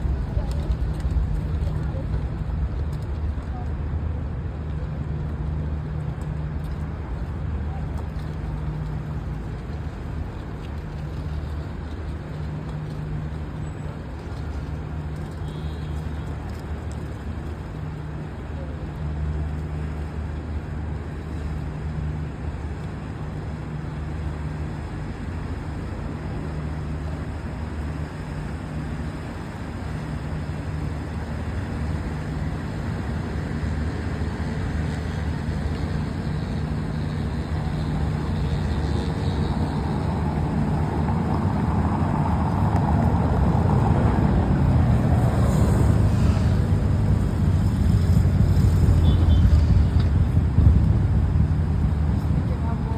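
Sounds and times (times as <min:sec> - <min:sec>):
boat engine humming: 0:00.0 - 0:52.9.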